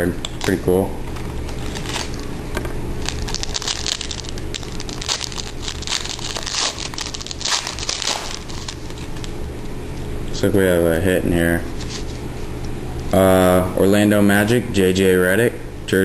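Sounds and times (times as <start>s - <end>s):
steady low hum: 0.0s - 16.0s
wrapper crinkling and tearing: 0.4s - 2.4s, 3.0s - 9.4s.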